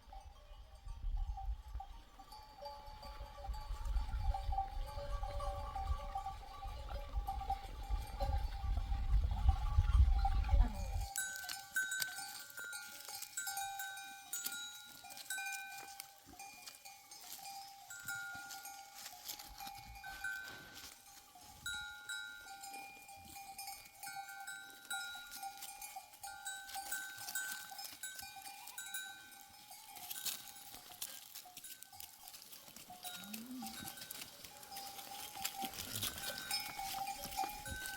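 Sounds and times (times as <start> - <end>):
livestock bells clinking: 0.0 - 37.9.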